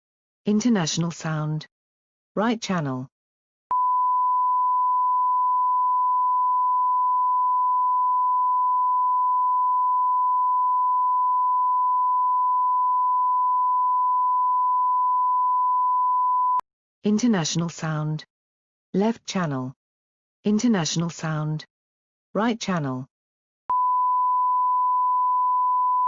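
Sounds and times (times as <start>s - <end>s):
steady sine test tone: 3.7s - 16.6s, 23.7s - 26.0s.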